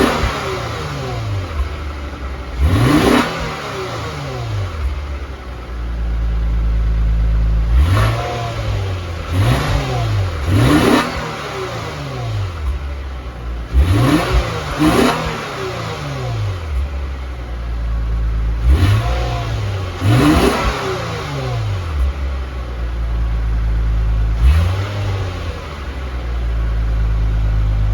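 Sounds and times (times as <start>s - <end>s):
car engine idling and revving: 0.0s - 27.9s.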